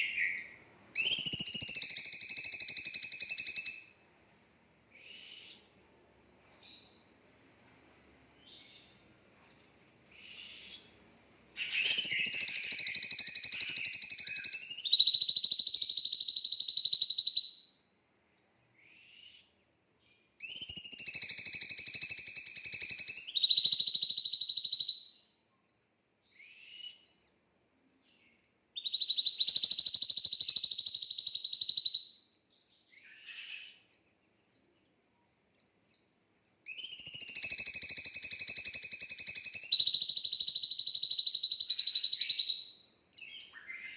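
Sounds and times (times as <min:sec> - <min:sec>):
songbird whistling call: 0:00.0 - 0:04.0, 0:04.9 - 0:05.7, 0:10.1 - 0:10.9, 0:11.6 - 0:17.7, 0:18.8 - 0:19.6, 0:20.4 - 0:25.4, 0:26.3 - 0:27.2, 0:28.1 - 0:34.9, 0:36.7 - 0:43.9
faint short bird chirps: 0:26.3 - 0:27.2, 0:28.0 - 0:34.9.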